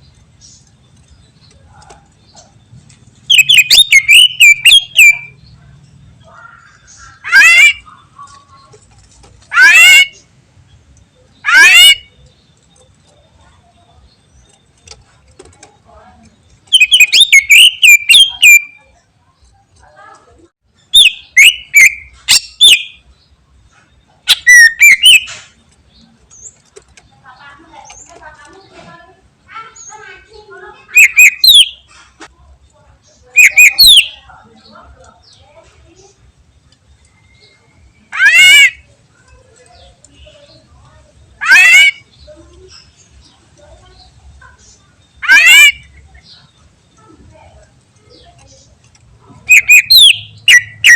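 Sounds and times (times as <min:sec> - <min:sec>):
bird singing: 0:00.0 - 0:50.9
harsh wavering bird call: 0:03.3 - 0:05.5, 0:06.2 - 0:08.2, 0:09.4 - 0:10.3, 0:11.3 - 0:12.2, 0:16.7 - 0:18.9, 0:20.9 - 0:23.0, 0:24.3 - 0:25.5, 0:30.7 - 0:31.9, 0:33.3 - 0:34.3, 0:37.4 - 0:38.9, 0:41.4 - 0:42.8, 0:45.2 - 0:46.4, 0:49.4 - 0:50.9.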